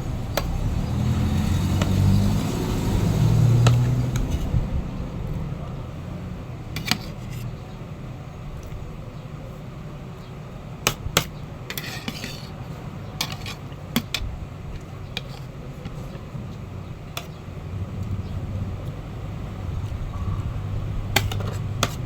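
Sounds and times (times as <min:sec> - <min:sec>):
steady low hum: 0:00.0 - 0:22.0
utensil scraping plate: 0:01.4 - 0:04.6, 0:06.7 - 0:07.6, 0:10.9 - 0:17.4, 0:19.6 - 0:22.0
utensils clinking on plate: 0:10.9 - 0:12.6, 0:13.2 - 0:16.2, 0:21.2 - 0:22.0.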